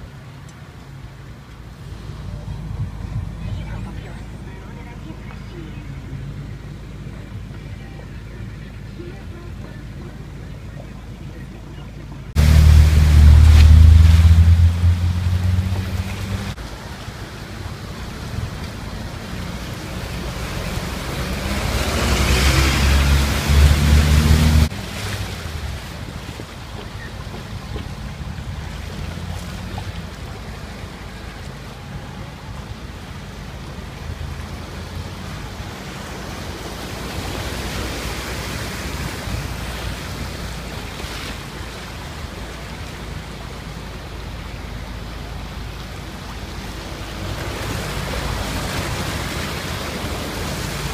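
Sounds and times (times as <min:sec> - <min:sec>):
floodwater surging and splashing: 0:00.0 - 0:50.9
heavy low rumble: 0:01.6 - 0:34.7.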